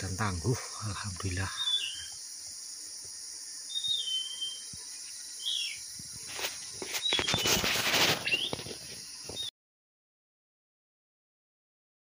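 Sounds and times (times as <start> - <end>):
insects droning: 0.0 - 9.5
whistled bird calls: 1.6 - 2.2, 3.7 - 4.7, 5.4 - 5.8, 7.0 - 8.6
rustling and scuffling: 6.0 - 9.5.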